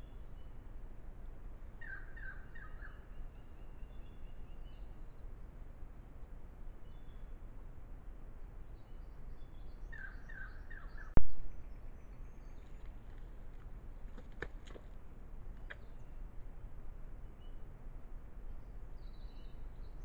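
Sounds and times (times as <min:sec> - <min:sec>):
low background noise: 0:00.0 - 0:20.0
bird chirps: 0:01.8 - 0:05.0, 0:08.8 - 0:12.9, 0:18.5 - 0:20.0
faint clicks: 0:12.1 - 0:16.0.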